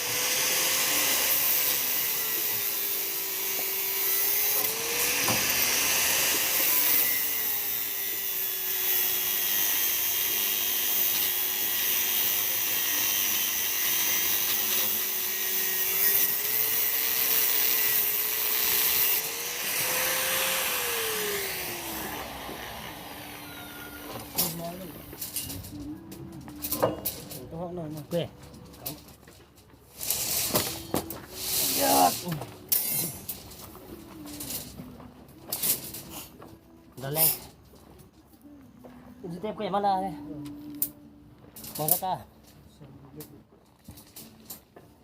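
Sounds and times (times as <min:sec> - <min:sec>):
power tool motor whining: 0:00.0 - 0:24.6
loud hiss: 0:30.0 - 0:33.4.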